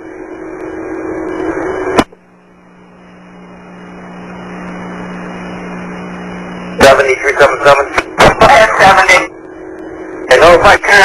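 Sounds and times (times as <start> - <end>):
radio hum and hiss: 0.0 - 11.0.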